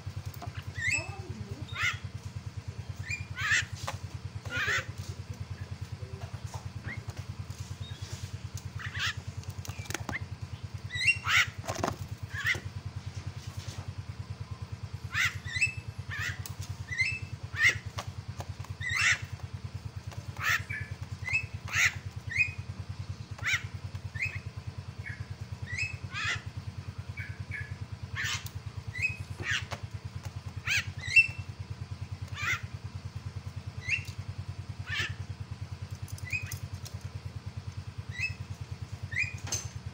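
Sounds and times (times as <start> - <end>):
bird giving sharp calls: 0.4 - 2.1, 3.0 - 5.0, 7.8 - 11.7, 12.3 - 12.7, 15.0 - 18.0, 18.7 - 19.4, 20.1 - 29.8, 30.4 - 31.6, 32.2 - 32.7, 33.8 - 34.1, 34.8 - 35.3, 38.1 - 38.4, 39.1 - 39.4.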